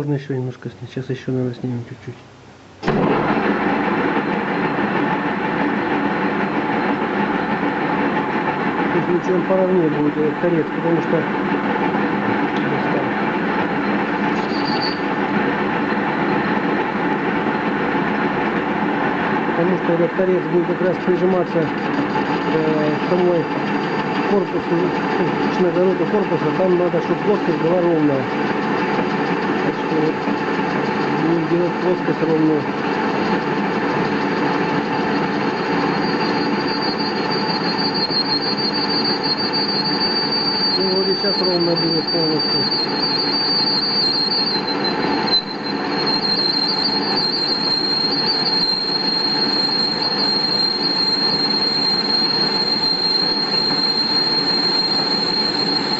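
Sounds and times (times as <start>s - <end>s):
lathe motor hum: 2.6s - 55.9s
metal lathe machining: 2.8s - 55.9s
cutting tool squealing: 8.8s - 16.8s, 19.6s - 55.9s.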